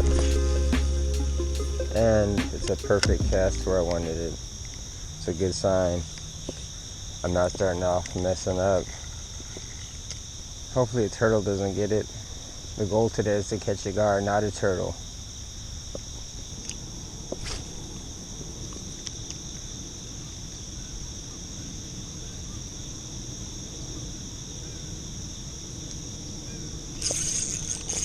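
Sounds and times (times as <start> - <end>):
loud noise: 0.0 - 5.0
insects trilling: 0.0 - 28.0.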